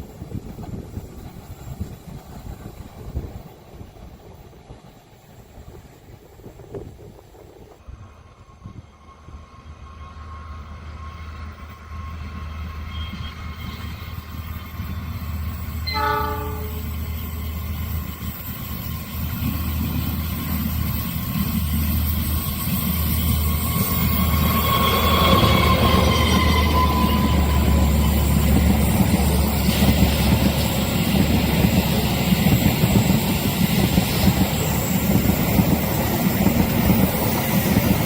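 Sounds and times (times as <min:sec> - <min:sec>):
diesel train approaching: 0:00.0 - 0:38.0
locomotive horn blast: 0:15.8 - 0:17.0.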